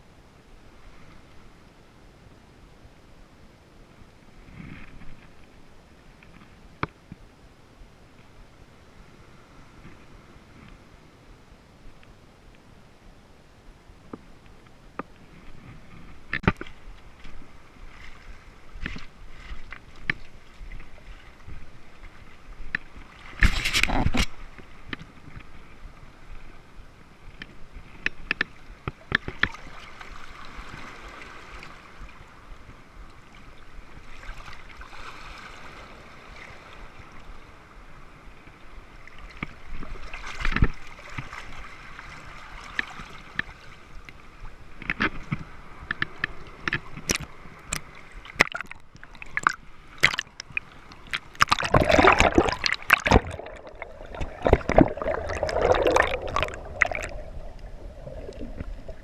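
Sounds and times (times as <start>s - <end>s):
rushes of water: 15.1s - 59.0s
sea water washing: 45.4s - 59.0s.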